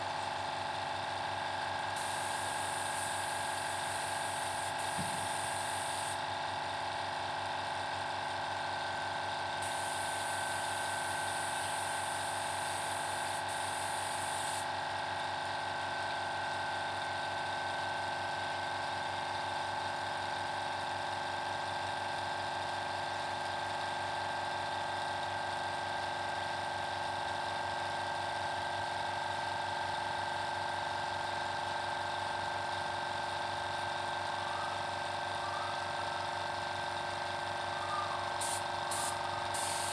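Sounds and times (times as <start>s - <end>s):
air compressor motor running: 0.0s - 39.9s.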